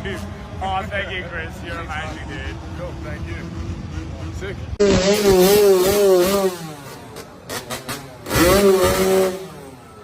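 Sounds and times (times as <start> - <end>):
dirt bike engine revving: 3.4 - 10.0.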